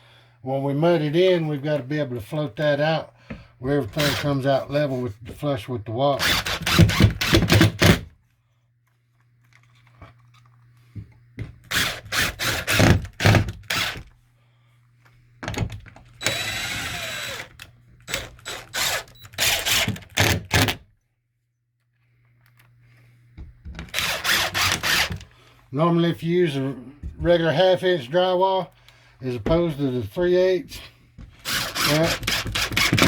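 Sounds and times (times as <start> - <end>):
power drill driving screws: 3.9 - 4.4, 6.2 - 8.1, 11.6 - 14.1, 16.2 - 20.8, 23.8 - 25.3, 31.4 - 33.0.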